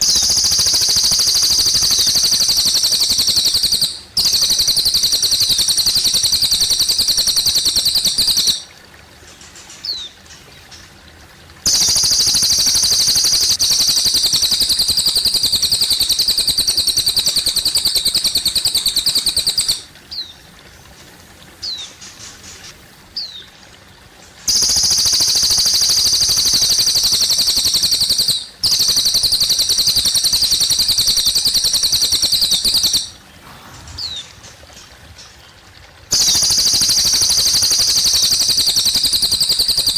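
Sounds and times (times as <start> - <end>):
bird singing buzzing trills: 0.0 - 8.6, 11.7 - 20.4
thin bird chirps: 0.0 - 11.0, 11.7 - 20.5, 21.6 - 23.5, 24.4 - 35.5, 36.1 - 39.9
faint trickle of water: 0.0 - 39.9.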